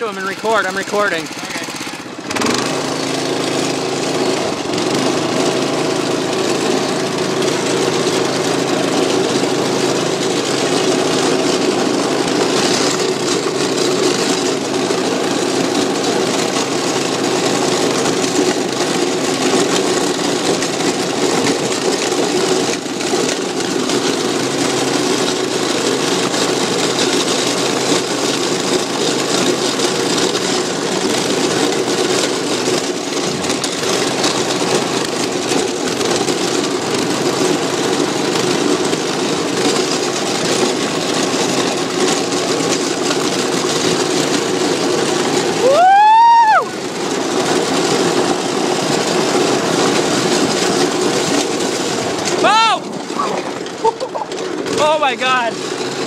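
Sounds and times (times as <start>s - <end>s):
small engine running: 0.0s - 56.0s
dense rushing noise: 45.1s - 56.0s.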